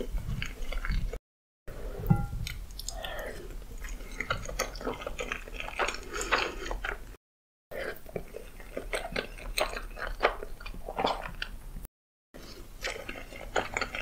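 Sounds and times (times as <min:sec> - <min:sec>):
wet chewing and lip smacking: 0:02.4 - 0:07.2, 0:07.8 - 0:11.6, 0:12.5 - 0:14.0
noodles slurped: 0:02.7 - 0:07.2, 0:12.4 - 0:14.0.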